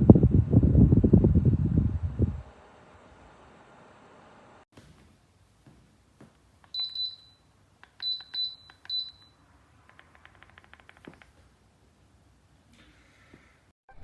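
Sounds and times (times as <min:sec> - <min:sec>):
short high button beeps: 0:06.8 - 0:07.4, 0:08.0 - 0:09.3.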